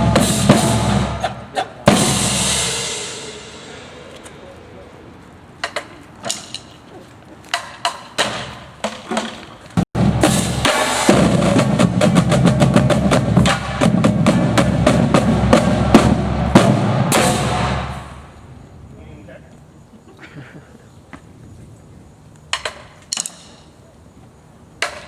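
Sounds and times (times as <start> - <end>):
scattered drum strikes: 0.0 - 1.2, 1.9 - 3.7, 10.0 - 18.1
drum line playing snare and bass: 0.0 - 3.8, 7.5 - 18.2.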